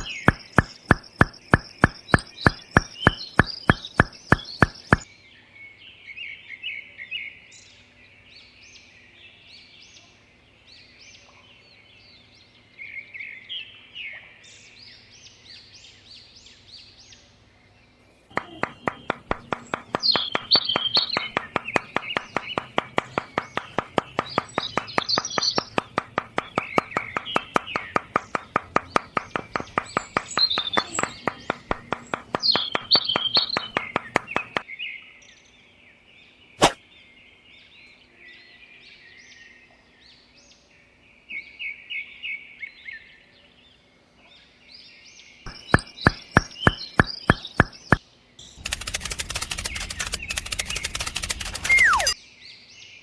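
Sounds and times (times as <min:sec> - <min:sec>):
small birds chirping: 0:00.0 - 0:53.0
fast mechanical ticking: 0:18.7 - 0:34.6, 0:48.6 - 0:52.2.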